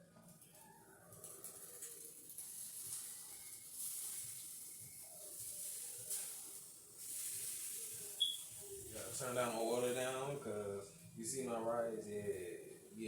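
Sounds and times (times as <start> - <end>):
chicken sizzling in a pan: 0.4 - 10.5.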